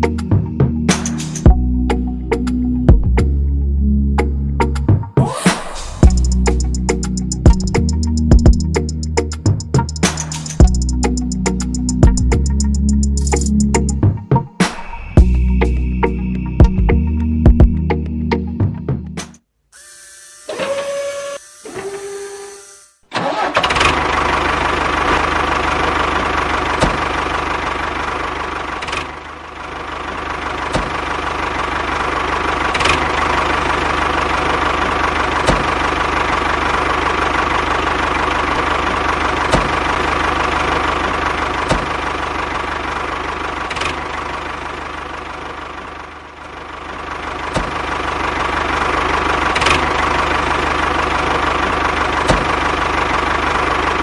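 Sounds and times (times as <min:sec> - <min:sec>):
music: 0:00.0 - 0:19.4
small motor running: 0:19.8 - 0:23.1.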